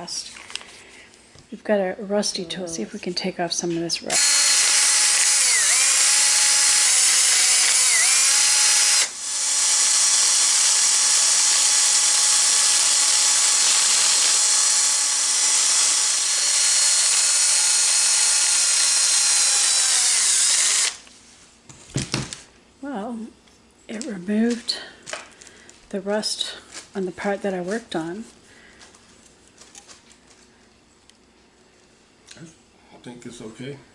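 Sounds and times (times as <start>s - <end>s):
mini drill sanding metal: 4.1s - 21.0s.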